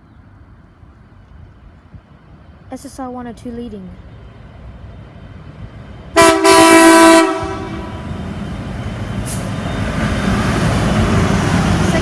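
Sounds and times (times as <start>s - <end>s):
locomotive engines rumbling: 0.0s - 12.0s
locomotive horn blast: 6.1s - 8.1s.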